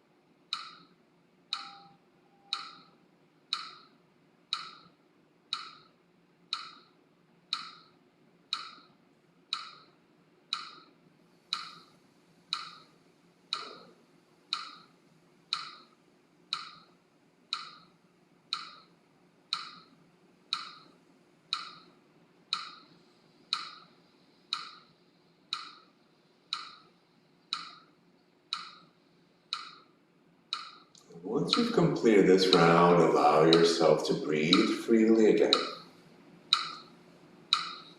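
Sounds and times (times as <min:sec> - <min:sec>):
metronome-like ticking: 0:01.5 - 0:03.9, 0:04.5 - 0:04.9, 0:05.5 - 0:05.9, 0:06.5 - 0:06.9, 0:15.5 - 0:15.8, 0:19.5 - 0:19.9, 0:20.5 - 0:20.9, 0:21.5 - 0:21.9, 0:22.5 - 0:22.9, 0:25.5 - 0:25.9, 0:28.5 - 0:28.9, 0:29.5 - 0:29.9, 0:30.5 - 0:35.8, 0:36.5 - 0:36.9, 0:37.5 - 0:37.9.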